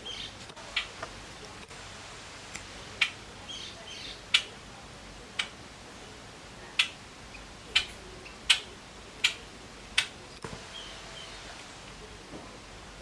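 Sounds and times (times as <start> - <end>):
bird beak pecking clicks: 10.0 - 10.2.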